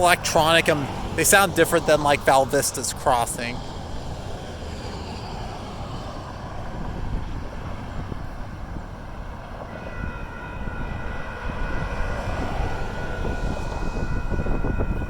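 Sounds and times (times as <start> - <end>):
crossing signal bells ringing: 0.0 - 3.6, 9.6 - 15.0
freight train rumble: 0.0 - 15.0
road traffic: 0.0 - 15.0.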